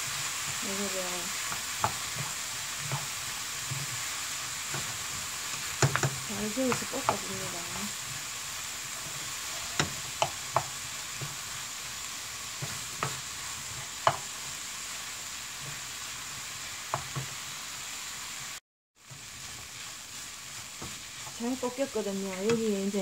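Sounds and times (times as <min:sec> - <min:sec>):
rice sizzling in a frying pan: 0:00.0 - 0:23.0
wooden spatula knocking on pan: 0:01.5 - 0:02.3, 0:05.8 - 0:07.3, 0:09.7 - 0:11.4, 0:14.0 - 0:14.3, 0:16.9 - 0:17.4.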